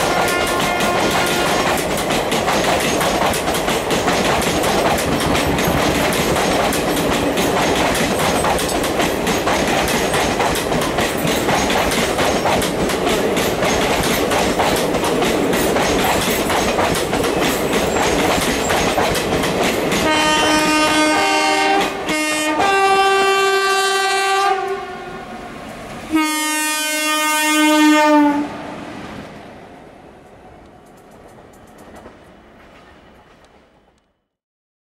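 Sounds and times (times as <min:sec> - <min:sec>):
locomotive horn blasts: 0:00.0 - 0:01.7, 0:20.0 - 0:25.4, 0:26.1 - 0:28.7
train wheels clattering: 0:00.0 - 0:22.8.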